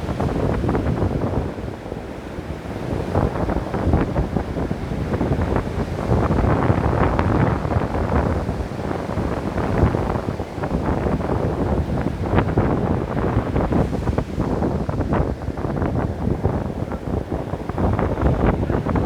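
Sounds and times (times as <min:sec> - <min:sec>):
ocean waves crashing: 0:00.0 - 0:19.0.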